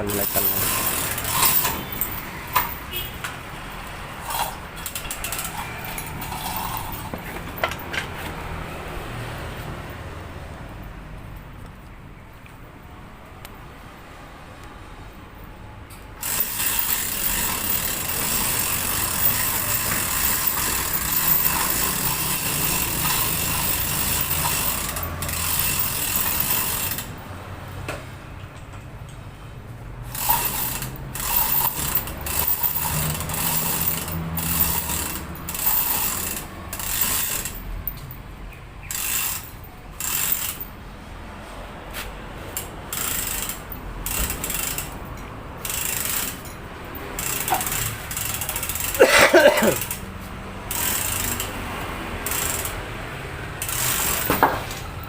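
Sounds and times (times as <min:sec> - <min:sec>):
chain rattling: 0:00.0 - 0:03.0, 0:04.2 - 0:08.1, 0:16.2 - 0:27.1, 0:30.1 - 0:38.2, 0:47.2 - 0:50.0
chain hoist ratchet clicking: 0:00.0 - 0:03.1, 0:03.9 - 0:08.1, 0:16.2 - 0:27.2, 0:30.0 - 0:38.2, 0:38.8 - 0:40.8, 0:42.5 - 0:51.6, 0:52.2 - 0:55.0.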